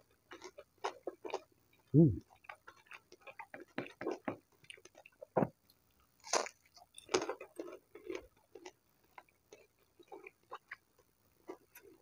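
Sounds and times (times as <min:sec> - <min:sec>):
chewing fried food: 0:00.0 - 0:12.0
wet mouth sounds: 0:02.0 - 0:02.2.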